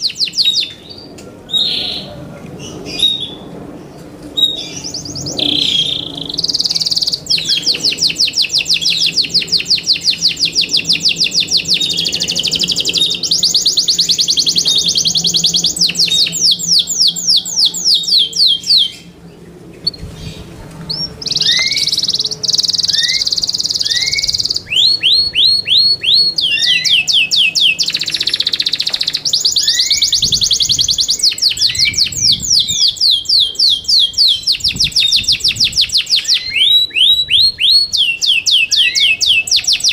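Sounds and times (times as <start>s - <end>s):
canary singing trills: 0.0s - 3.5s, 4.4s - 39.9s.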